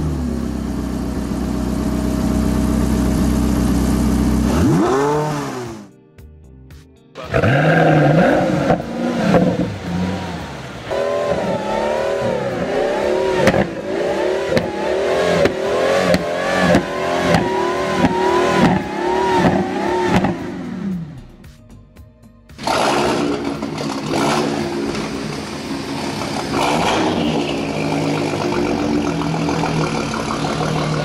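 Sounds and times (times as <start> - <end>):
car engine revving: 0.0 - 5.9, 7.2 - 21.4, 22.6 - 31.0
exhaust cracks: 7.2 - 20.9, 22.6 - 31.0.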